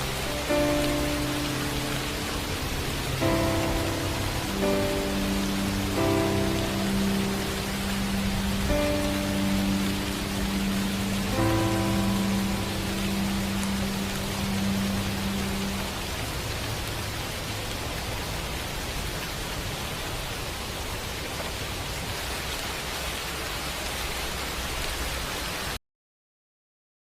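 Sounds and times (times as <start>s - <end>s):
string pad note: 0.0s - 16.4s
white noise hiss: 0.0s - 25.7s.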